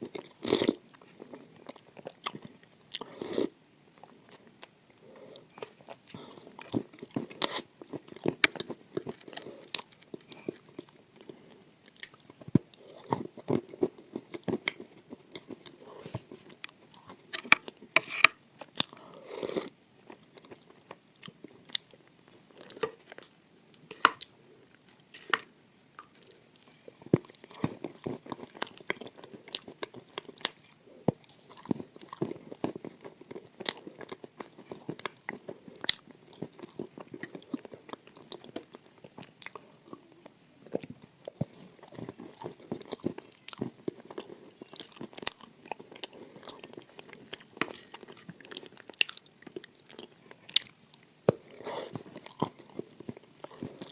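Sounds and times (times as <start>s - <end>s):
person chewing crunchy food: 0.0s - 53.9s.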